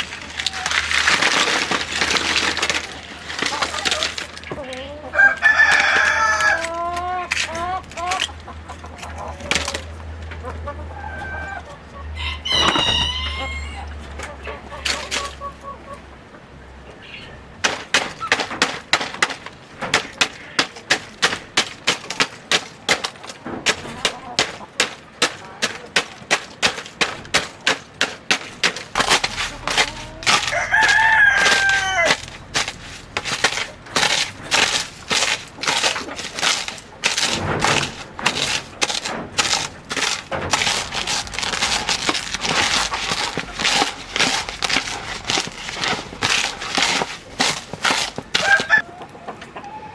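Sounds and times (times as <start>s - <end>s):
rooster crowing: 5.0s - 7.3s, 10.9s - 14.0s, 29.3s - 32.3s, 48.4s - 48.9s
sharp even knocks: 17.6s - 48.8s.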